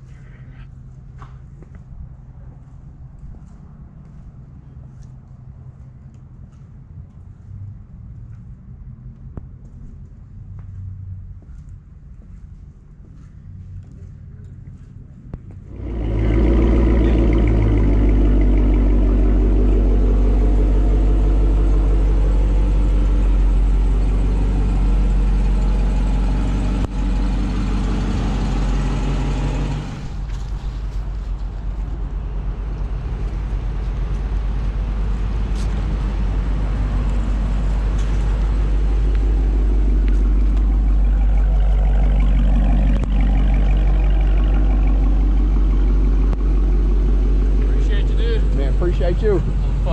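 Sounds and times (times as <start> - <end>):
car engine starting and idling: 13.1 - 49.9.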